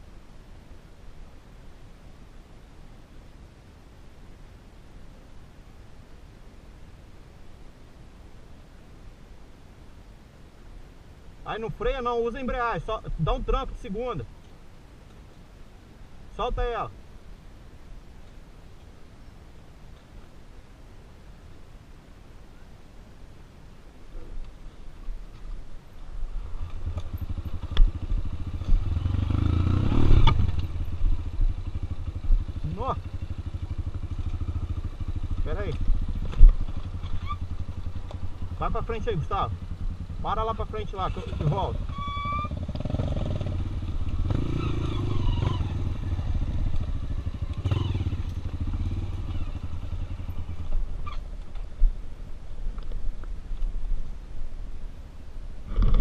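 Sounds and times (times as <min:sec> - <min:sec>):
motorcycle engine running: 0:26.4 - 0:51.8
motorcycle knocks and rattles: 0:35.6 - 0:38.3.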